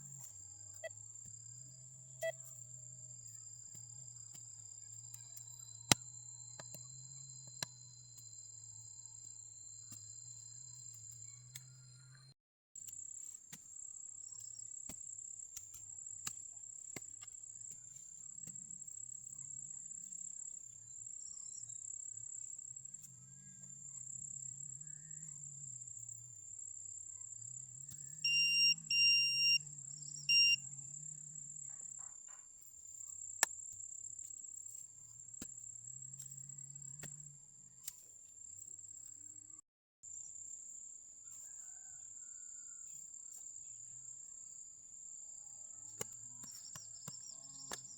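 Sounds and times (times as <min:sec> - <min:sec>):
crickets trilling: 0:18.3 - 0:32.2
metal detector beeps: 0:28.2 - 0:30.6.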